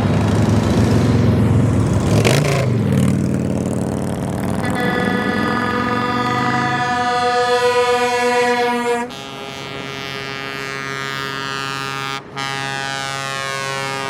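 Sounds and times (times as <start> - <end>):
truck air horns blasting: 4.6 - 14.0.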